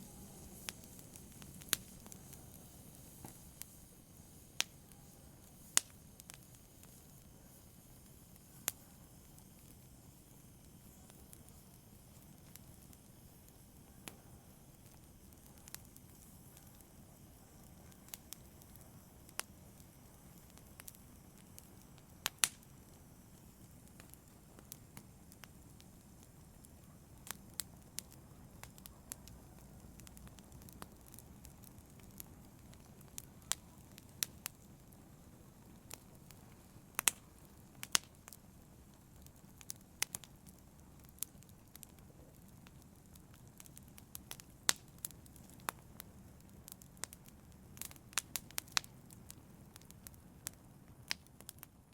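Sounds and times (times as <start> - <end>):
fire crackling and popping: 0.0 - 51.9
hiss of flames: 0.0 - 51.9.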